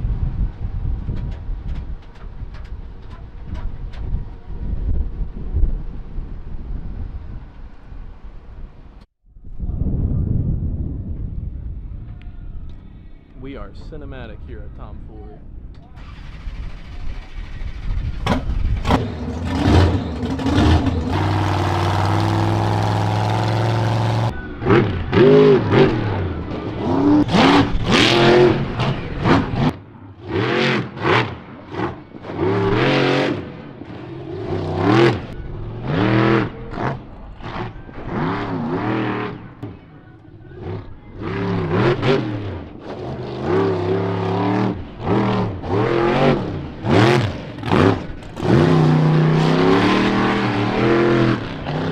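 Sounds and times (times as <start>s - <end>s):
truck engine revving: 15.9s - 51.9s.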